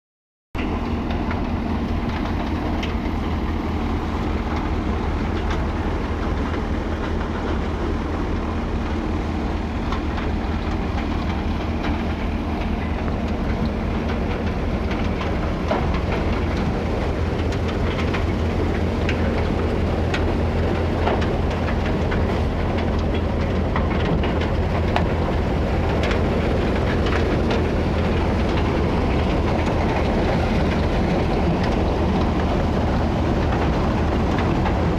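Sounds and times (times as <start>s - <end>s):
thresher machine drone: 0.6s - 34.9s.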